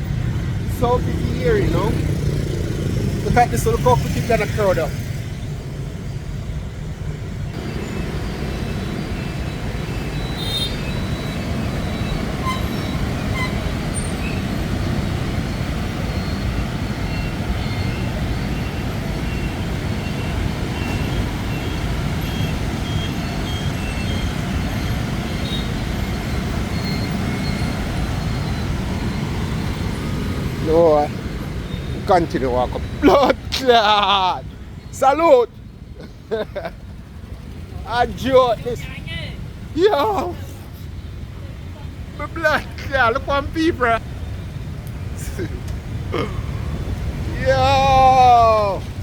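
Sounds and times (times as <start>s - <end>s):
motorbike traffic passing: 0.0s - 49.0s
short horn beeps: 10.2s - 14.4s.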